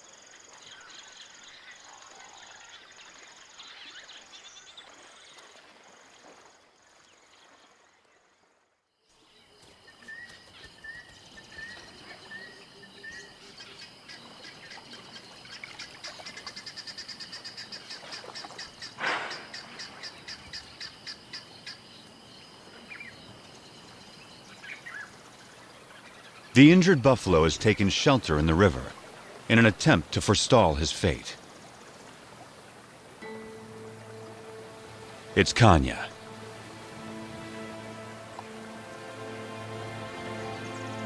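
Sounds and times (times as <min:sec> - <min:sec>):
insects calling: 0:09.1 - 0:41.0
birds calling: 0:09.2 - 0:41.0.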